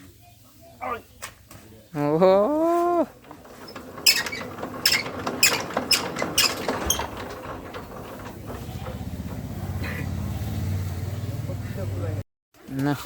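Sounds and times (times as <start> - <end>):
diesel engine chugging: 3.1 - 12.2
squeaky crank clicks: 3.2 - 9.8.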